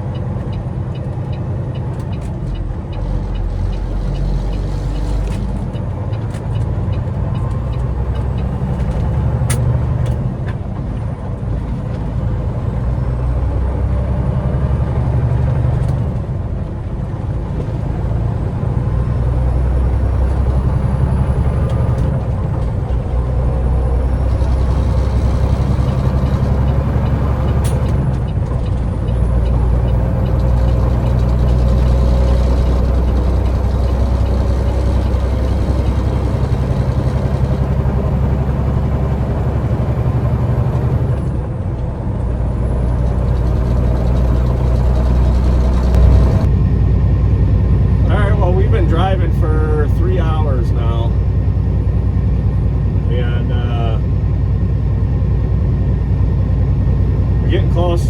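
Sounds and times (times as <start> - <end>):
truck diesel engine drone: 0.0 - 58.0.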